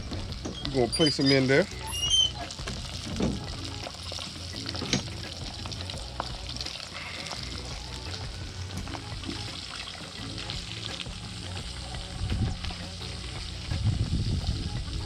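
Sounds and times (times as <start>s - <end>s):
fish frying in hot grease: 0.0s - 15.0s
low rumbling bump: 10.6s - 15.0s.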